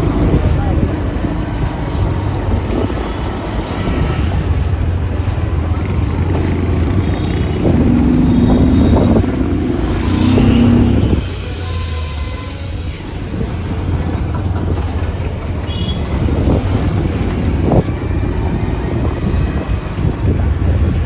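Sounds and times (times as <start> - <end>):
road noise: 0.0 - 21.0
motorcycle engine drone: 4.3 - 15.2
high steady tone: 7.2 - 12.8.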